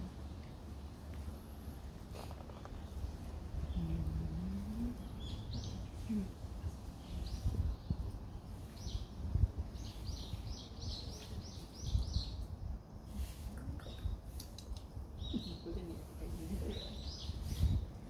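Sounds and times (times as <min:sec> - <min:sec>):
bird chirping: 0:02.6 - 0:06.3, 0:07.0 - 0:12.5, 0:16.6 - 0:17.9.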